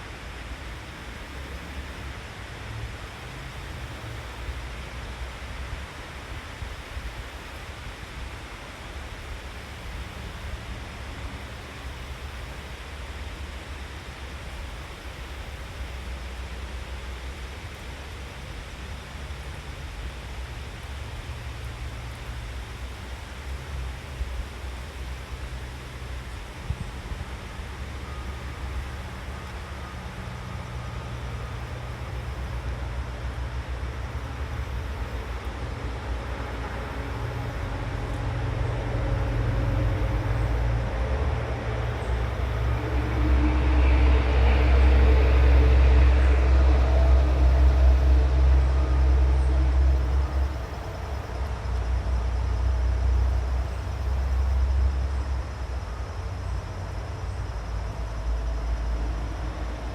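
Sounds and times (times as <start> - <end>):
passing vehicle rumble: 21.0 - 59.9.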